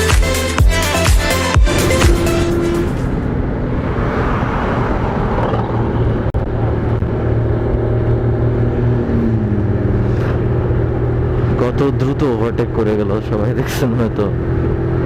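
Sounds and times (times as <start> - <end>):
motorcycle engine hum: 0.0 - 15.0
vehicle passing: 1.4 - 11.9
wind and road noise: 1.4 - 15.0.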